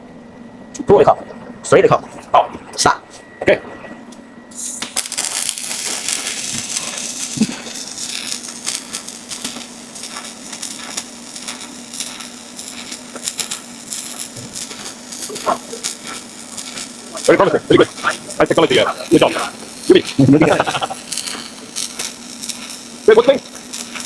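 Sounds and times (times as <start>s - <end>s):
faint steady hum: 0.0s - 24.0s
welding arc crackling: 4.5s - 24.0s.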